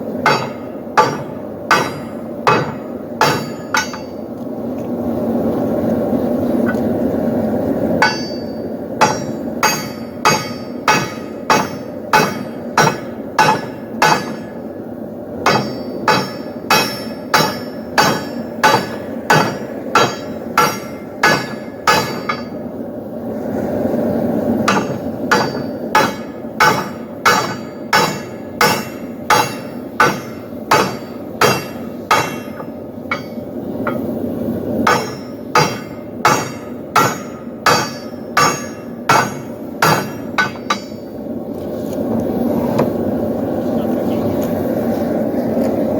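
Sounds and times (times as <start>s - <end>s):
steady rushing noise: 0.0s - 45.9s
hammer striking steel on anvil: 0.2s - 4.2s, 8.0s - 14.7s, 15.4s - 22.6s, 24.6s - 34.1s, 34.8s - 41.1s.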